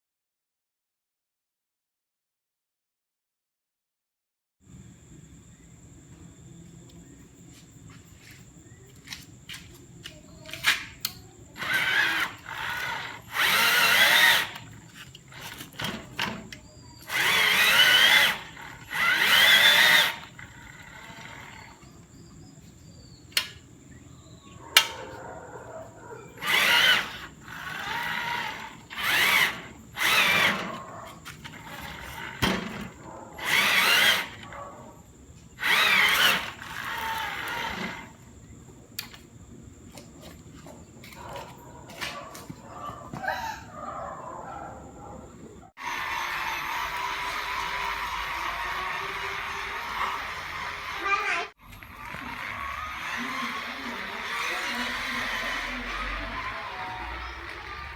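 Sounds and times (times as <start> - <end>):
electric drill motor whining: 11.5 - 22.1, 26.4 - 34.6, 35.6 - 38.2, 45.8 - 57.9.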